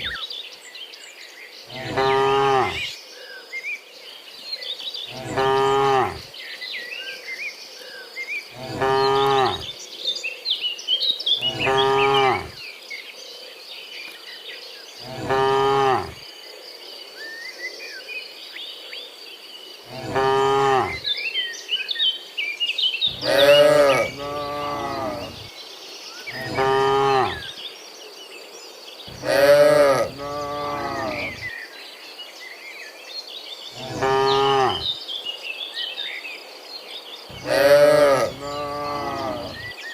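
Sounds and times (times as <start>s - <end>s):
bird chirps: 0.0s - 0.4s, 4.7s - 12.6s, 29.0s - 31.7s
cattle mooing: 1.7s - 2.8s, 5.2s - 6.3s, 8.6s - 9.7s, 11.4s - 12.6s, 15.0s - 16.2s, 19.9s - 21.0s, 23.1s - 25.5s, 26.4s - 27.4s, 29.1s - 31.4s, 33.8s - 34.9s, 37.3s - 39.7s
high insect drone: 23.1s - 25.6s, 29.1s - 31.7s, 37.3s - 39.7s.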